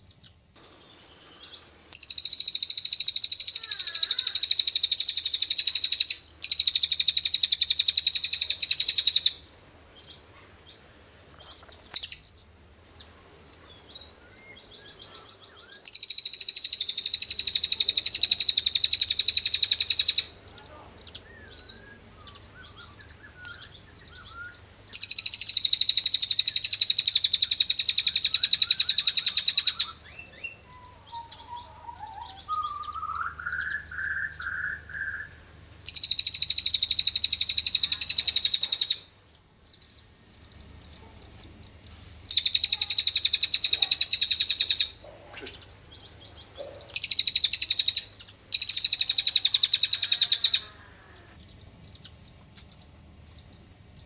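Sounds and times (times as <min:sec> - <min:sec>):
soft bird chirps: 0:00.0 - 0:54.0
bird high-pitched rattling trill: 0:01.9 - 0:09.4, 0:15.9 - 0:35.2, 0:35.8 - 0:39.0, 0:39.7 - 0:50.7.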